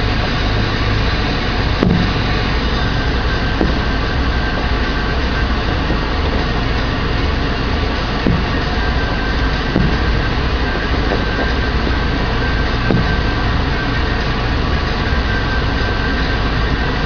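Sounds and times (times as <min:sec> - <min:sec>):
car interior rumble: 0:00.0 - 0:17.0
distant fireworks bangs: 0:01.6 - 0:14.5.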